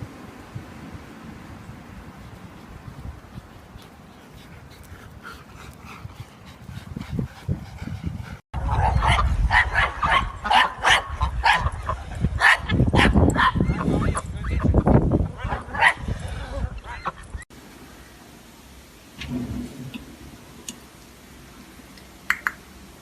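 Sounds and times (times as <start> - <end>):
dog barking and yipping: 8.7 - 11.8, 12.4 - 14.6, 15.4 - 16.1.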